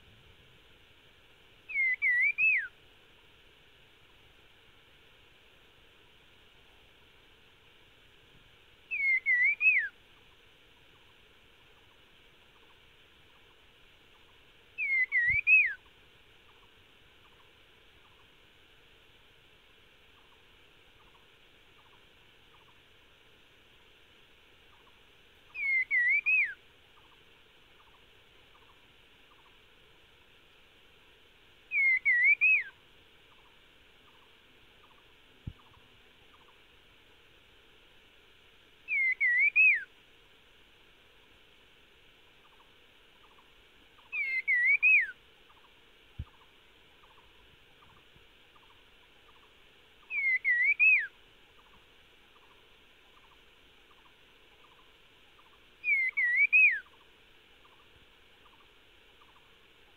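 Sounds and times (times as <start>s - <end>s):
bird whistling calls: 1.7s - 2.7s, 8.9s - 9.9s, 14.8s - 15.8s, 25.5s - 27.1s, 31.7s - 32.8s, 38.9s - 39.9s, 44.0s - 45.6s, 50.0s - 51.7s, 55.4s - 57.0s.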